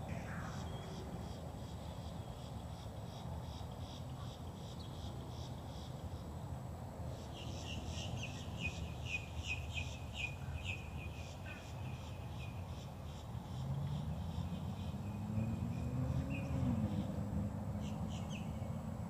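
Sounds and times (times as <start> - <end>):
songbird chirping: 7.2 - 19.0.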